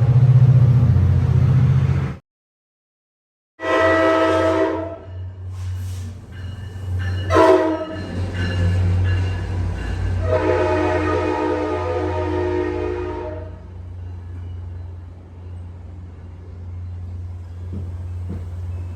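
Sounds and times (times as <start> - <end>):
train rumble: 0.0 - 2.2, 3.6 - 18.9
locomotive horn blasts: 3.6 - 5.3, 7.2 - 8.1, 10.2 - 13.7.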